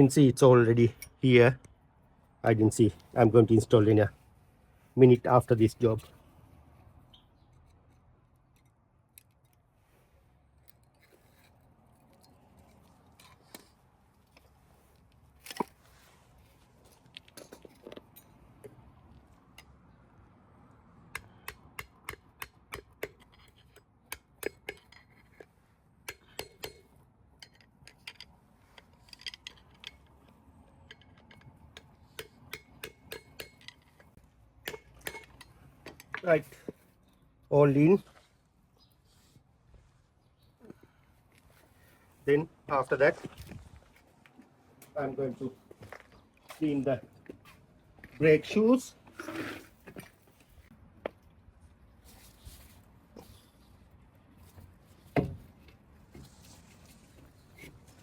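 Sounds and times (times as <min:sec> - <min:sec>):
hand tools clinking on metal: 0:24.4 - 0:36.6.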